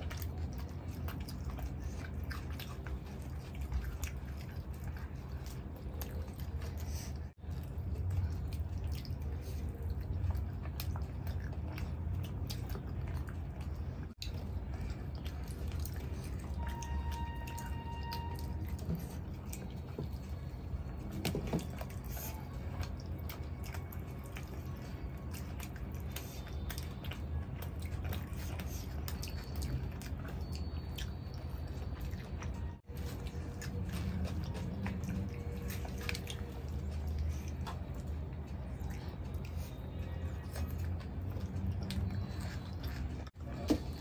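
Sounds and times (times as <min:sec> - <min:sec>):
wet chewing and lip-smacking: 0:00.0 - 0:44.0.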